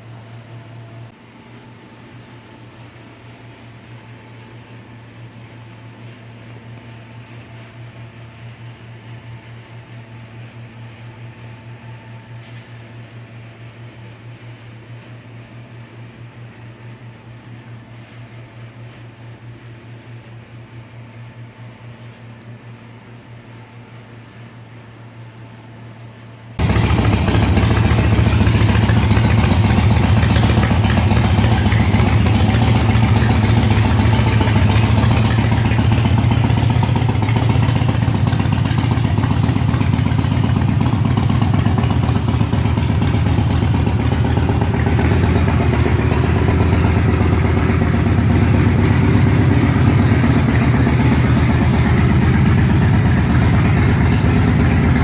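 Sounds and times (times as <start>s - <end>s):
motorcycle engine idling: 26.6s - 55.0s.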